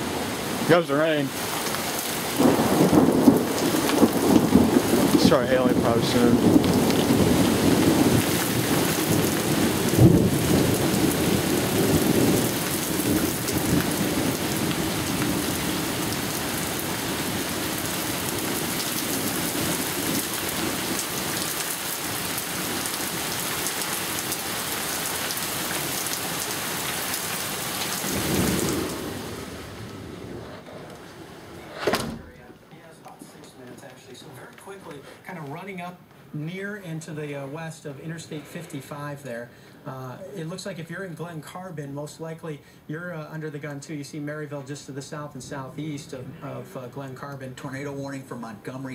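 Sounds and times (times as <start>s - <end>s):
heavy rain pouring: 0.0s - 31.6s
low thunder rumbling: 2.0s - 21.4s, 27.2s - 32.4s
sharp thunder clap: 2.3s - 15.0s.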